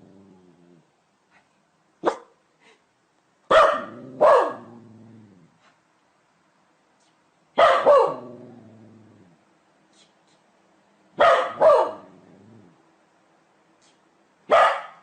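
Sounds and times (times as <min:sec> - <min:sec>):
dog barking: 0:02.0 - 0:02.4, 0:03.5 - 0:04.7, 0:07.6 - 0:08.3, 0:11.2 - 0:12.1, 0:14.5 - 0:15.0.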